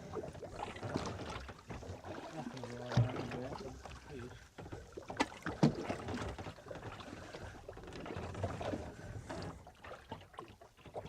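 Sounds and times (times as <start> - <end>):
water sloshing against boat hull: 0.0 - 11.0
sharp knocks on boat: 2.9 - 3.5, 4.7 - 6.6.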